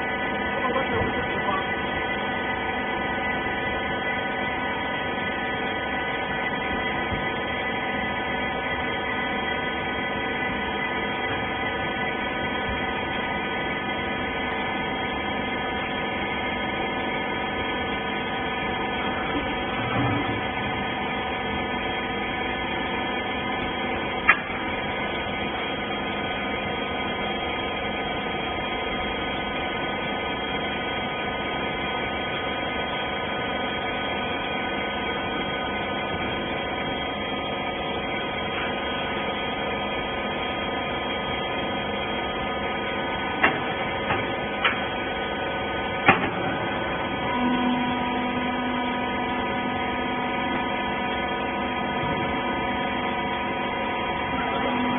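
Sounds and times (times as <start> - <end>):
hydraulic pump humming: 0.0 - 54.9
sharp clicks and knocks: 43.4 - 44.8.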